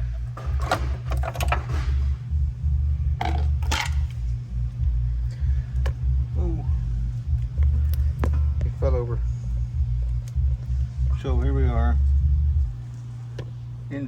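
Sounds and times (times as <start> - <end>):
steady low hum: 0.0 - 14.0
metal tools clinking and rattling: 0.2 - 2.0, 3.2 - 4.2.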